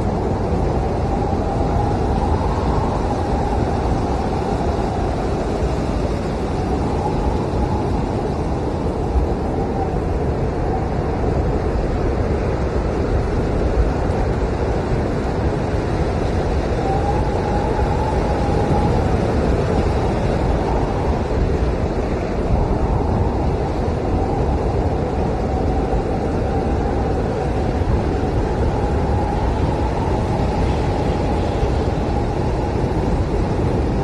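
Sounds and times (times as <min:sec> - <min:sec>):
blizzard wind howling: 0:00.0 - 0:34.0.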